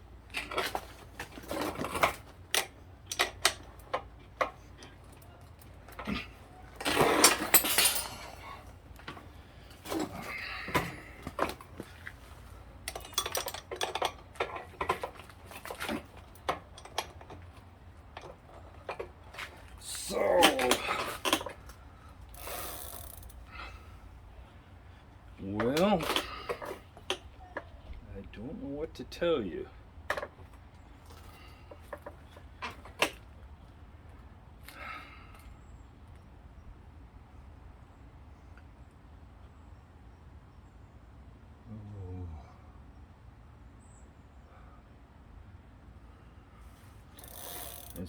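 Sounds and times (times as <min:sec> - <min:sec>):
metal tools clicking on bicycle pedal: 0:01.6 - 0:09.2, 0:20.4 - 0:23.8, 0:47.1 - 0:48.0.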